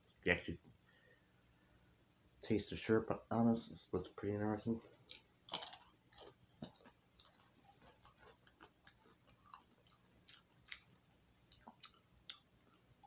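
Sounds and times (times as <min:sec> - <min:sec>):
crunchy chewing: 0:05.0 - 0:13.0.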